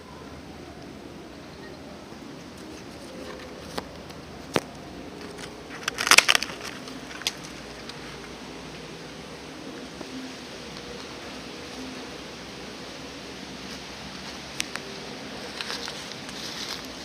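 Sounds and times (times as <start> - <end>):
bamboo cracking: 2.5 - 8.4, 13.8 - 17.0.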